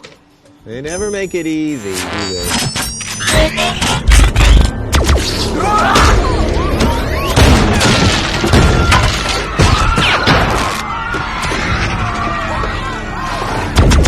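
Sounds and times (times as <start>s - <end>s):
crashes and shattering: 7.4s - 10.8s.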